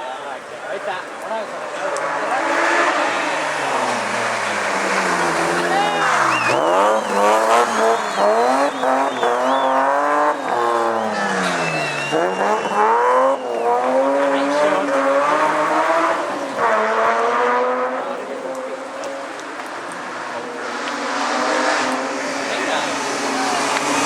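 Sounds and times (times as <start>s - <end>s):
rally car engine revving hard: 1.6s - 24.0s
tyres squealing: 2.0s - 17.1s.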